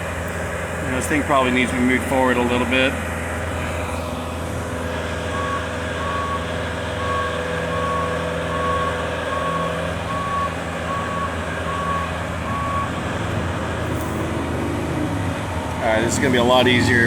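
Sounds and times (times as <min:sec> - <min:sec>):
travel alarm beeping: 0:05.2 - 0:17.0
lift motor drone: 0:10.1 - 0:17.0.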